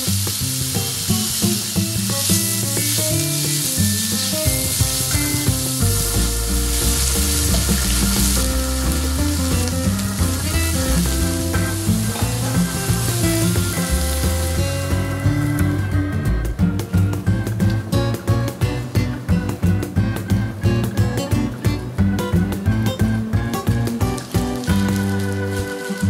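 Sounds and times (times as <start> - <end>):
meat and onion sizzling in a pan: 0.0 - 16.0, 23.4 - 26.0
light background music: 0.0 - 26.0.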